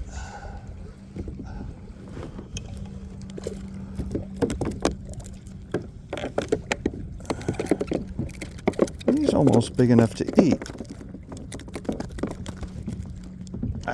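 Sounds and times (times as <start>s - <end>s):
low steady hum: 0.0s - 13.9s
water splashing: 0.0s - 13.9s
knocks and rattles: 3.3s - 13.9s.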